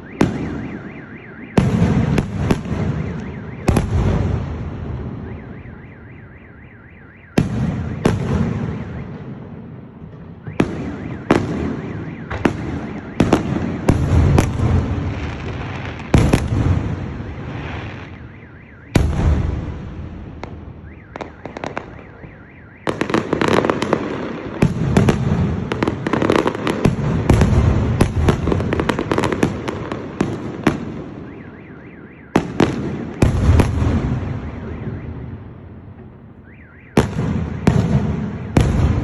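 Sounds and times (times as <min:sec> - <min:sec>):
firework shells booming: 0:10.4 - 0:18.2, 0:37.0 - 0:39.0.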